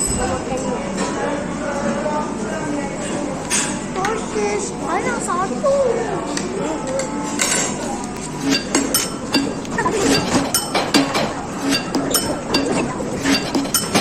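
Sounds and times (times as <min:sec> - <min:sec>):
light clinking strikes: 0:08.4 - 0:14.0.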